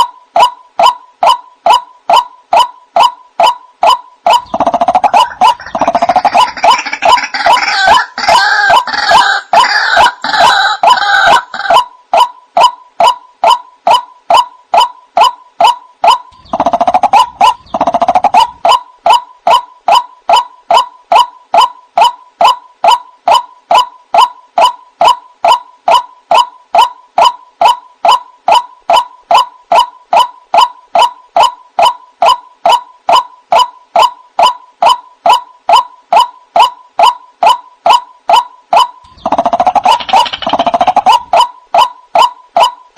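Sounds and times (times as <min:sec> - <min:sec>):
waterhen calling sharp notes: 0:00.0 - 0:42.9
low throaty bird calls: 0:13.0 - 0:22.2.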